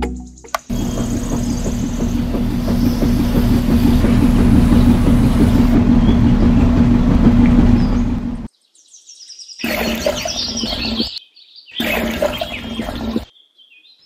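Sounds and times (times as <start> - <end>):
dense rattle: 0.6 - 8.5.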